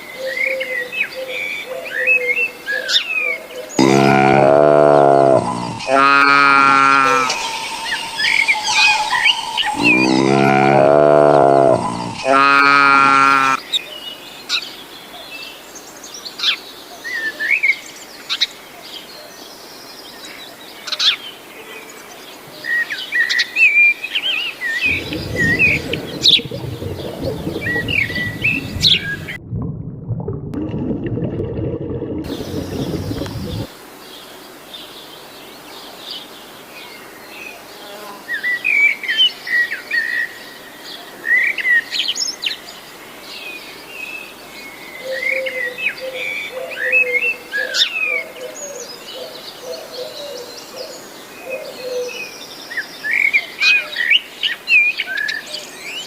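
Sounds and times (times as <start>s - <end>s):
dense low noise: 3.8s - 12.5s, 24.9s - 33.7s
birds chirping: 3.8s - 13.6s, 24.8s - 29.4s, 32.0s - 33.7s
low warbling bird call: 3.8s - 13.6s, 24.8s - 29.6s, 31.4s - 33.7s.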